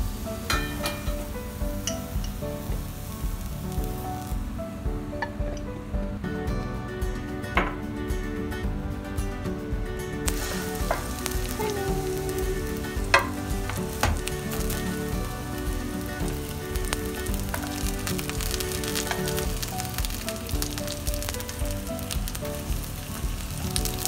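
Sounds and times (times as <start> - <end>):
eggplant sizzling in oil: 0.0 - 4.4, 10.2 - 24.0.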